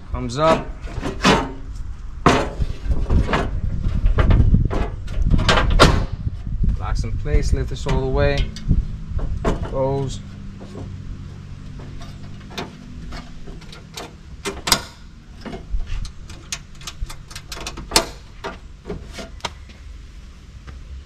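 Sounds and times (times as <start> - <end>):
low hum: 0.0 - 18.9
metal clicks and knocks: 2.2 - 6.1, 11.7 - 19.6.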